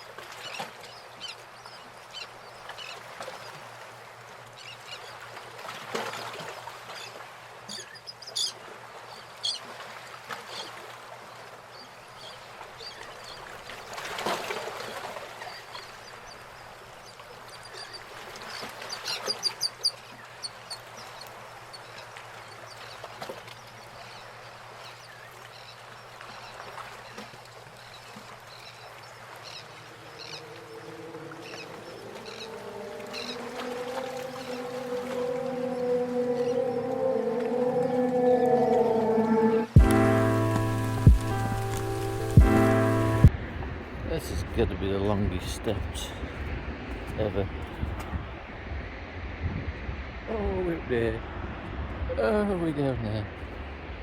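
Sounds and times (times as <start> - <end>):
outdoor background noise: 0.0 - 54.0
birds honking calls: 29.2 - 43.3.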